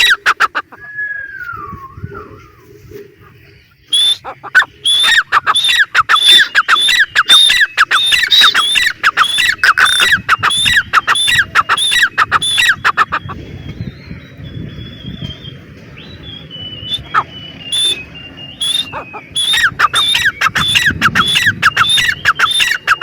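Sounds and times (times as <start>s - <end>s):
bird calling sharp repeated notes: 0.0s - 0.8s, 3.8s - 13.4s, 16.4s - 23.0s.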